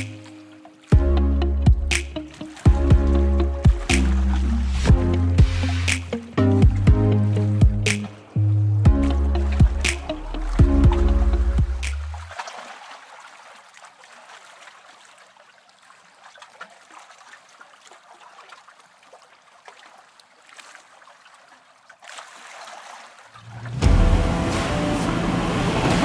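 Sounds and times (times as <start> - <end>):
background music: 0.0 - 12.2, 23.7 - 26.0
faint trickling water: 0.0 - 26.0.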